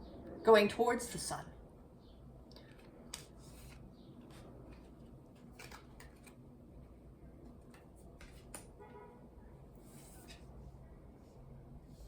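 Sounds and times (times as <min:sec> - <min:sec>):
cards rustling and clicking: 0:02.6 - 0:06.5, 0:07.4 - 0:08.7.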